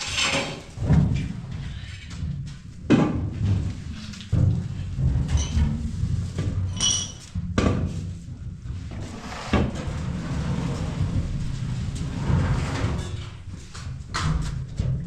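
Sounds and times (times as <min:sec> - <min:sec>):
low uneven rumble: 0:01.2 - 0:06.8, 0:07.9 - 0:15.0.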